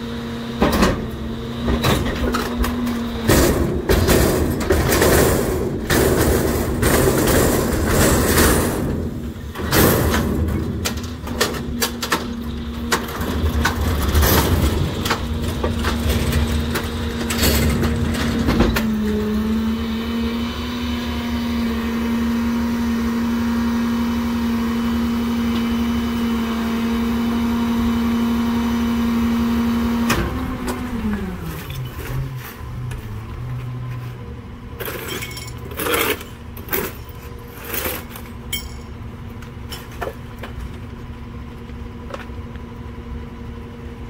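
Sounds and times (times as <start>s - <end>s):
garbage truck engine hum: 0.0s - 44.0s
trash being crushed: 0.6s - 19.2s.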